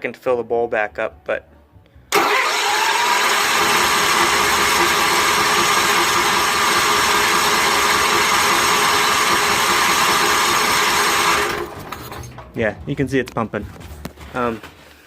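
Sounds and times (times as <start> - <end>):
engine cranking by starter: 2.1 - 12.3.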